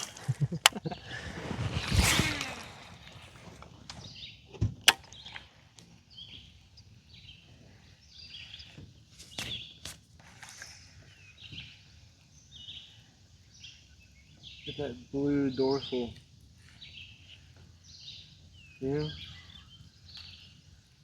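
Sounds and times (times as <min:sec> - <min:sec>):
sharp clicks or knocks: 0:00.0 - 0:01.0, 0:04.8 - 0:05.4
birds chirping: 0:00.0 - 0:21.0.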